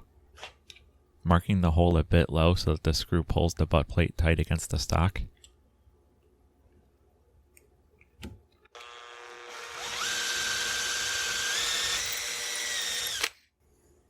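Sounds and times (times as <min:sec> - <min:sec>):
electric drill whining: 0:08.8 - 0:13.4.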